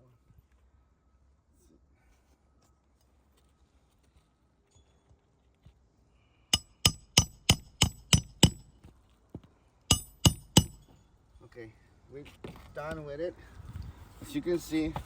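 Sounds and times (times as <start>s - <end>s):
hammer striking metal: 6.6s - 8.7s, 9.9s - 11.0s.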